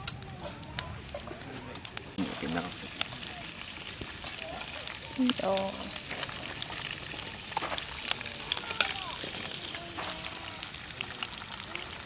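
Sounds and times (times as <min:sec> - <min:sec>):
campfire crackling and sizzling: 0:00.0 - 0:12.0.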